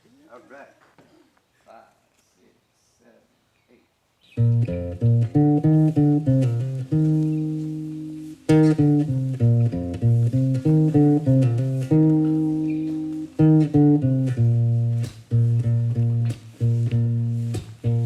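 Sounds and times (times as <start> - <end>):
bass guitar: 4.4 - 18.0
guitar notes and chords: 4.4 - 18.0.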